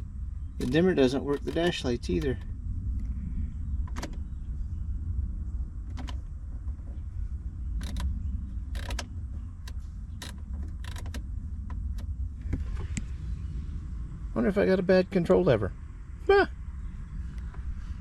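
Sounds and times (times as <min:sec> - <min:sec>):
steady low rumble: 0:00.0 - 0:18.0
sharp plastic clicks: 0:00.6 - 0:02.4, 0:07.8 - 0:08.1, 0:08.7 - 0:12.1.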